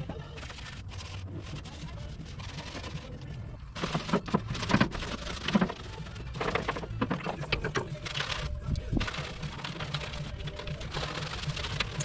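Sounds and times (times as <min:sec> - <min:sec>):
brush scrubbing: 0:00.4 - 0:03.2.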